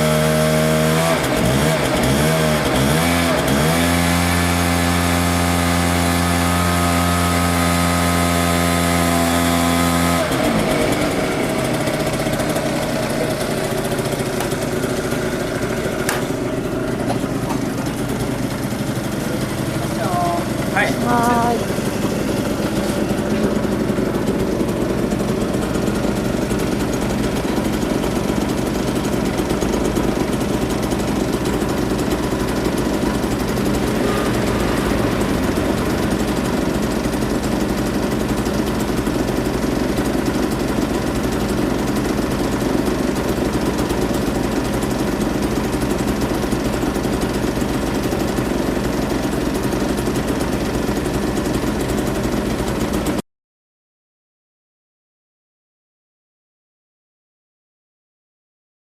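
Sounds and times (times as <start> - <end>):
moped engine idling: 9.7 - 53.2.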